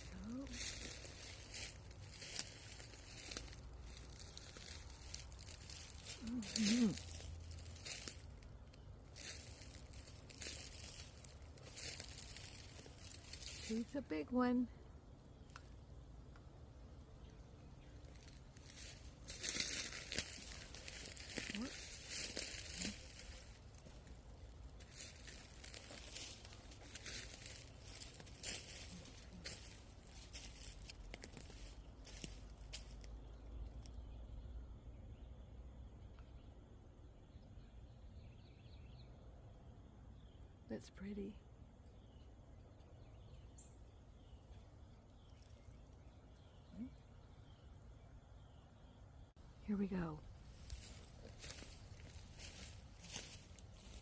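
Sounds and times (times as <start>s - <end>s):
rustling and crunching: 0.0s - 14.3s, 17.2s - 33.9s, 49.4s - 54.0s
dry crackling bursts: 0.0s - 14.7s, 17.2s - 33.8s, 49.6s - 54.0s.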